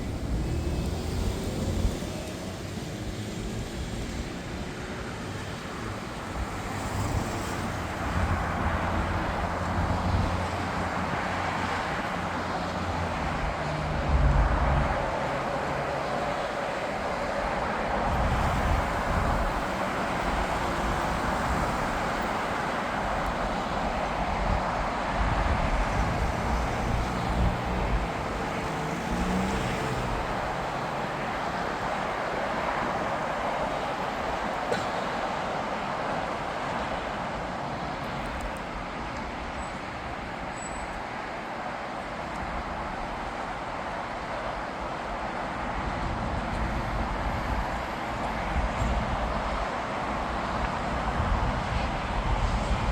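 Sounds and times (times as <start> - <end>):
jet airliner engine rumble: 0.0 - 52.9.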